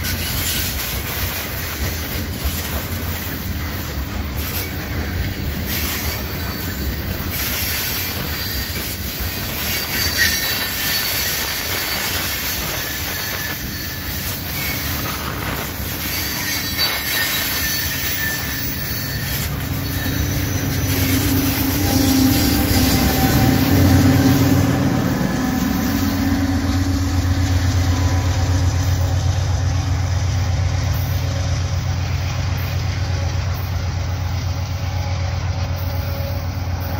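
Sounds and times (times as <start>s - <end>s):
diesel locomotive engine drone: 0.0s - 36.9s
train wheels clattering on rails: 0.0s - 36.9s
faint high wheel squeal: 1.6s - 36.9s.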